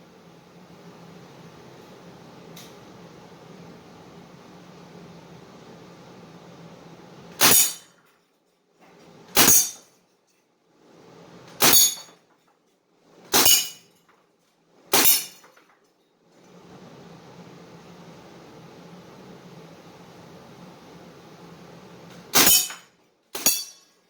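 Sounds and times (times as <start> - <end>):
air rifle shots: 22.4 - 22.8.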